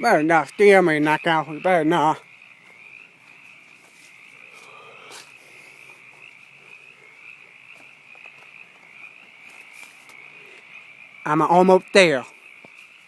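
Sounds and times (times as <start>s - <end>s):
frogs croaking: 0.0s - 13.0s.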